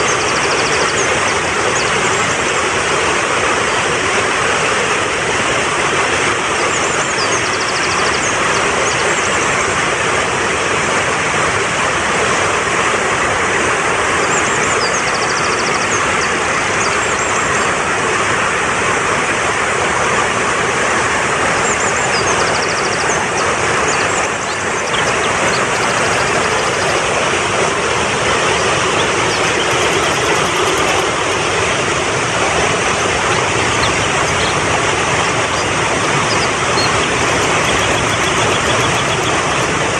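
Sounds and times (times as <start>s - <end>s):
mountain stream rushing: 0.0s - 39.9s
faint high bird chirps: 21.9s - 27.2s, 28.5s - 31.1s, 35.4s - 39.8s.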